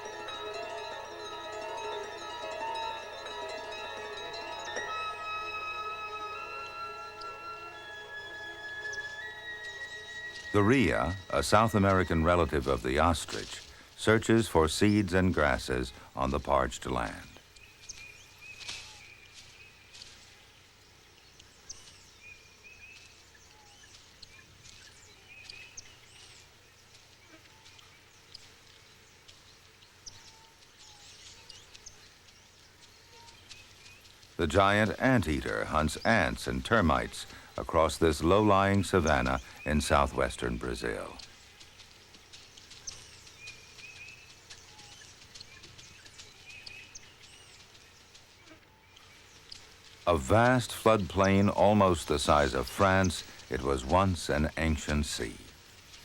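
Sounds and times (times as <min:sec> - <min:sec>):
birds chirping and whistling: 0:00.0 - 0:14.1, 0:21.2 - 0:27.0, 0:30.0 - 0:55.2.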